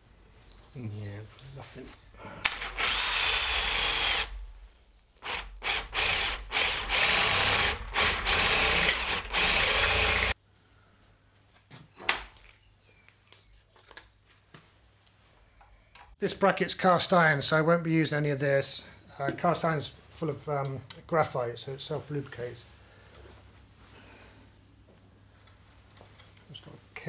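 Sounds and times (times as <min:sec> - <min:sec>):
power drill boring into metal: 0:02.4 - 0:04.4, 0:05.2 - 0:10.4.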